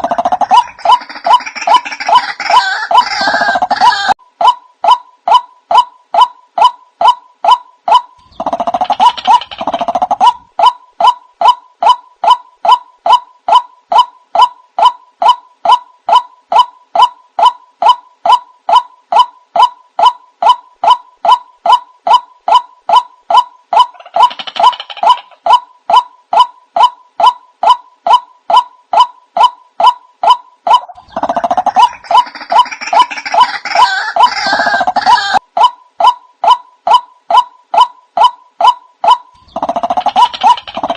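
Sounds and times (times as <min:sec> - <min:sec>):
bird kwak calls: 0:04.9 - 0:35.4, 0:36.0 - 0:40.9
harsh noisy bird calling: 0:05.3 - 0:35.4.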